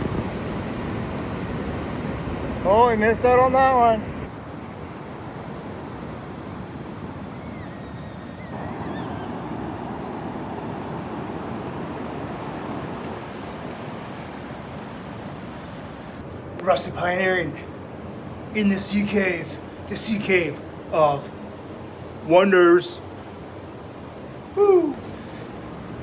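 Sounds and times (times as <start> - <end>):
ocean surf washing on beach: 0.0 - 26.0
wind: 0.0 - 26.0
faint high bird call: 7.3 - 9.5.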